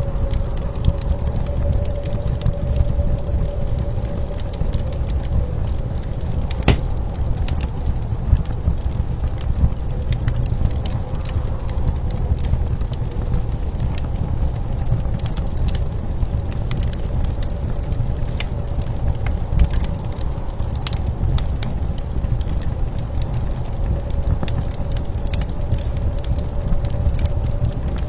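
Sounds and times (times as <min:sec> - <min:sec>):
wood fire crackling: 0:05.8 - 0:07.3.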